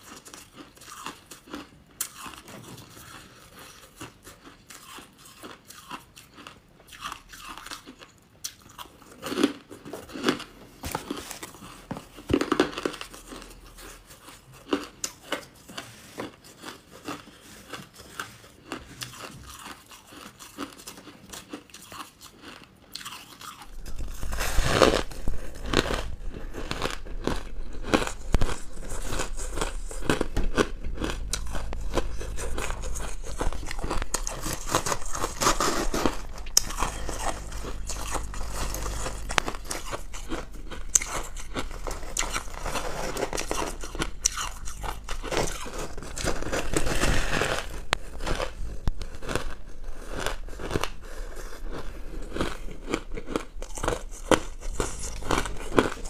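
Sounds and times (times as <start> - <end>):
crunching and chewing: 0.0 - 56.0
low hum: 23.6 - 56.0.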